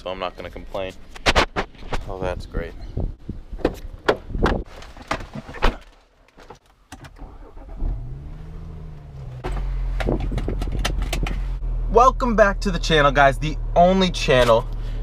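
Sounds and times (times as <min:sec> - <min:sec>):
car engine starting and running: 0:06.9 - 0:15.0.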